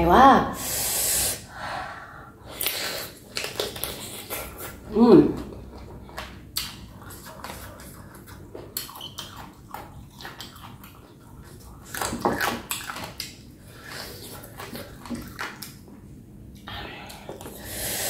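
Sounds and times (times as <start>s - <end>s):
wet mouth sounds: 2.5s - 15.7s
chewing and crunching: 2.6s - 17.6s.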